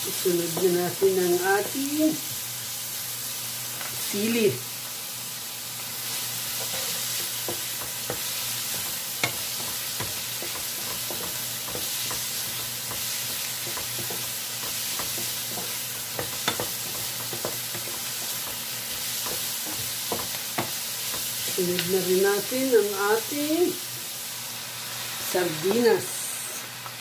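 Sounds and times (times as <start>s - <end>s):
vegetables sizzling in a pan: 0.0s - 27.0s
spatula scraping and tapping pan: 6.5s - 21.6s.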